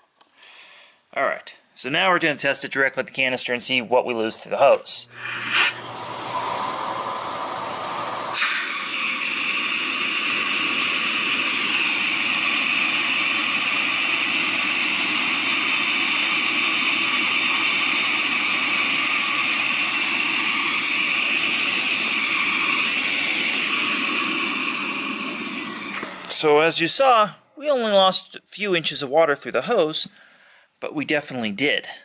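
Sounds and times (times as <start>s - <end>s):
vacuum cleaner motor hissing: 5.0s - 26.7s.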